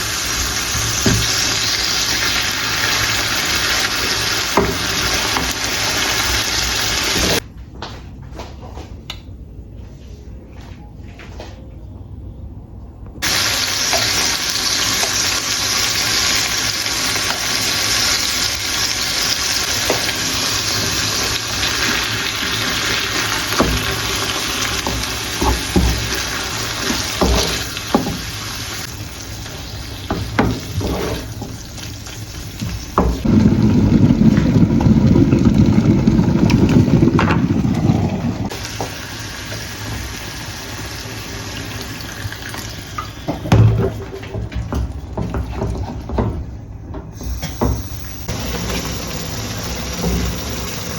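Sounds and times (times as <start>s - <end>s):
food sizzling in a frying pan: 0.0s - 7.4s, 13.2s - 44.1s, 47.2s - 50.9s
utensil scraping a pan: 30.4s - 31.5s
deep rushing noise: 33.2s - 38.5s.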